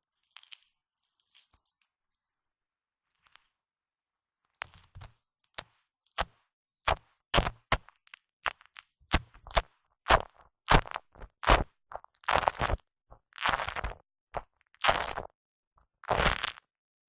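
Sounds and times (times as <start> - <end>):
foam squishing against microphone: 6.9 - 15.3, 16.1 - 16.7.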